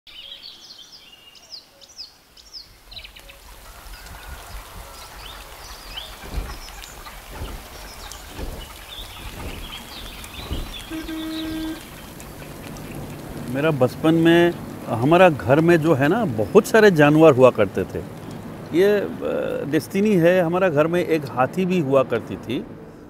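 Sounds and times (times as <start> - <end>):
birds chirping: 0.1 - 22.6
steady outdoor hiss: 0.1 - 23.0
low thuds: 4.1 - 16.8.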